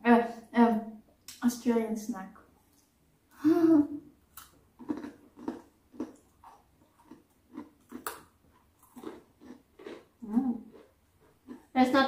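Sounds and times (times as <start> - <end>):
crunchy snack chewing: 4.3 - 11.7.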